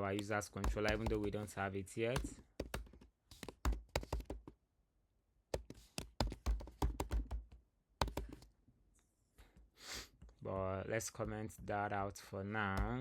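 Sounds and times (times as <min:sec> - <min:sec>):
typing on computer keyboard: 0:00.1 - 0:01.5, 0:02.1 - 0:04.5, 0:05.6 - 0:08.5.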